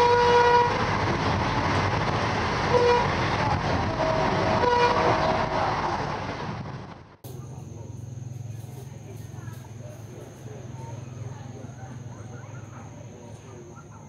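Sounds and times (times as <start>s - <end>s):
train horn toots: 0.0s - 0.9s, 2.7s - 3.2s, 3.8s - 5.7s
train wheel and rail noise: 0.0s - 14.0s.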